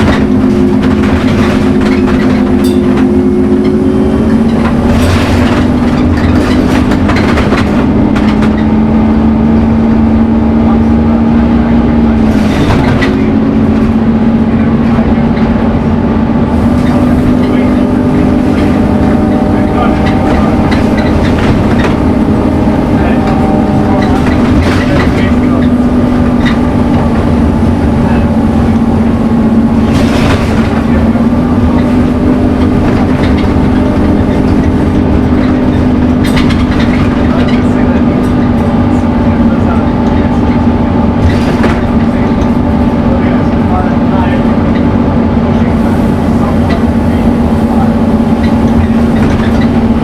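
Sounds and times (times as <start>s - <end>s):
rattling: 0.0s - 10.2s, 16.5s - 43.1s
bus diesel engine droning: 0.0s - 50.0s.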